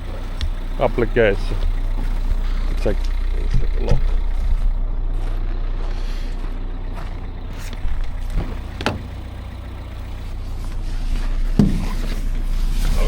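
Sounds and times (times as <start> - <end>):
engine idling: 0.0 - 13.0
short knocks: 11.5 - 12.2.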